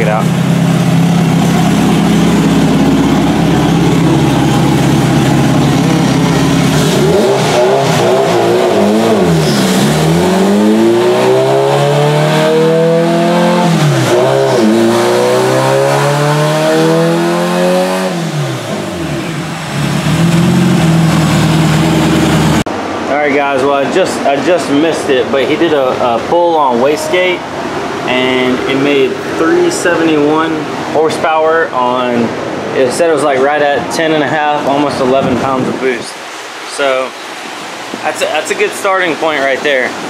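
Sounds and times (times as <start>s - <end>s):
turbocharged engine revving: 0.0s - 22.7s.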